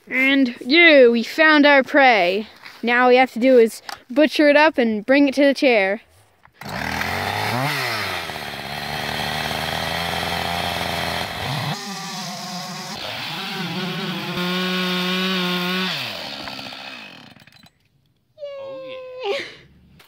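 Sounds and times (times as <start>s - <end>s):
chainsaw cutting wood: 6.6s - 17.8s.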